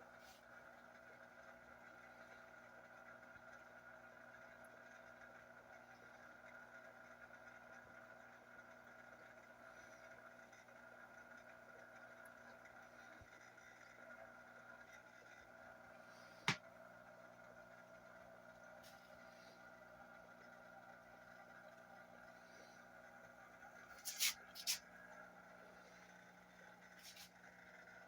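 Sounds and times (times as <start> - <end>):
aquarium equipment hum: 0.0 - 28.0.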